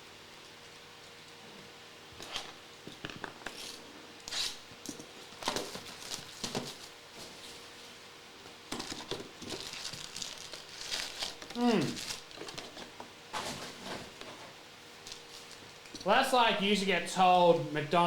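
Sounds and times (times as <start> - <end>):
foil wrappers and cards rustling: 5.3 - 8.0, 8.7 - 16.1.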